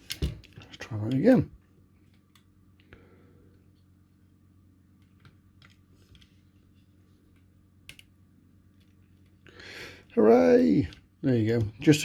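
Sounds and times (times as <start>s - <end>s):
low electrical hum: 0.0s - 12.0s
small switch clicks and taps: 7.9s - 8.1s.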